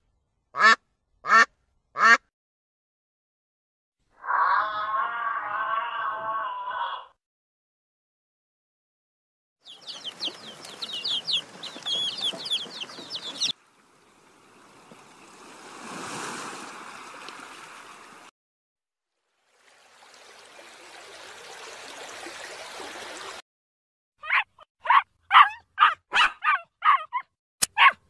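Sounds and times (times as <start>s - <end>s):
chickens calling: 9.6s - 13.6s.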